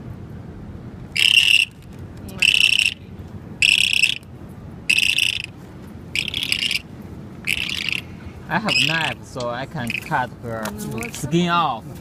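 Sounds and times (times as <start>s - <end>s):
bird calling: 1.2s - 3.0s, 3.6s - 4.3s, 4.9s - 9.2s, 9.8s - 10.3s.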